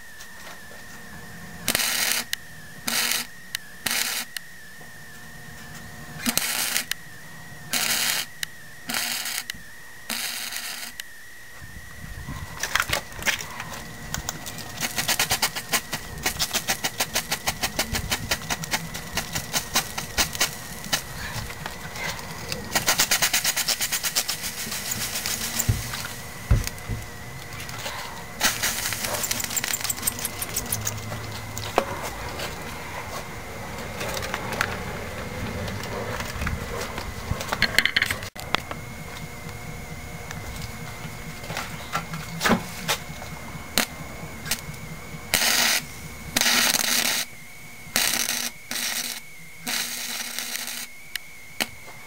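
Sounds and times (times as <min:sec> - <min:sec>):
welder arc crackling: 0:01.7 - 0:04.4, 0:06.2 - 0:07.0, 0:07.7 - 0:11.1, 0:12.8 - 0:27.8, 0:28.4 - 0:37.6, 0:42.8 - 0:47.3, 0:47.9 - 0:51.8.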